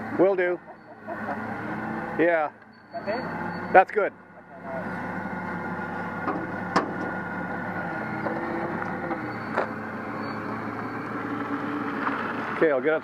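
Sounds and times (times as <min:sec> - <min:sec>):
engine idling: 0:02.6 - 0:10.1.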